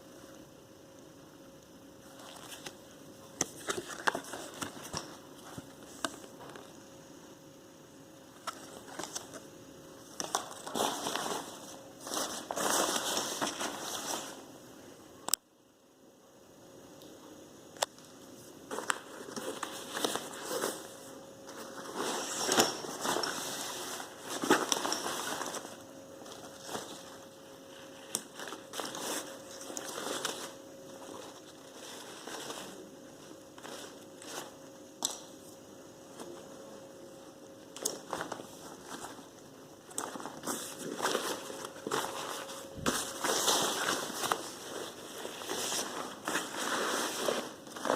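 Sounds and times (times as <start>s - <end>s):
fabric rustling and crinkling: 10.2s - 14.5s, 18.7s - 34.6s, 39.9s - 47.9s.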